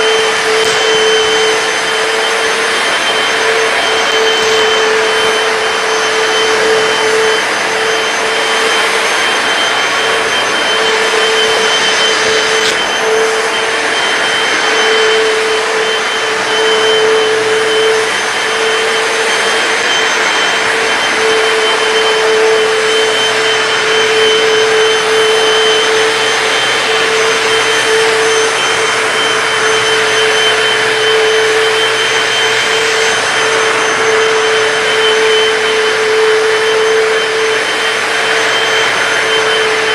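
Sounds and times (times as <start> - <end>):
floor cleaner motor whine: 0.0 - 39.9.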